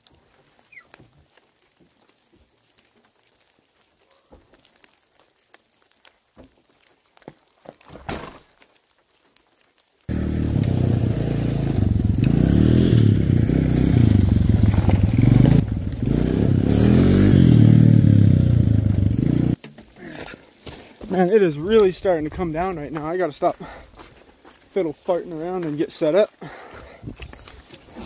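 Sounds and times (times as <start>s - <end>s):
quad bike engine revving: 10.1s - 19.6s.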